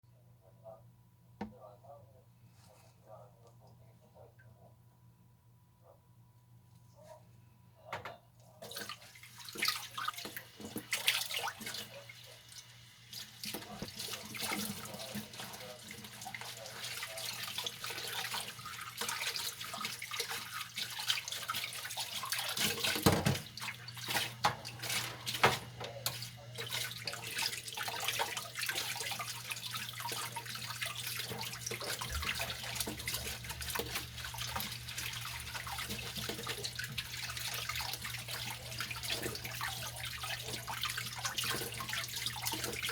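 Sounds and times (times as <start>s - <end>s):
tap water running and splashing: 8.6s - 42.9s
dishes clinking and knocking: 23.0s - 23.5s.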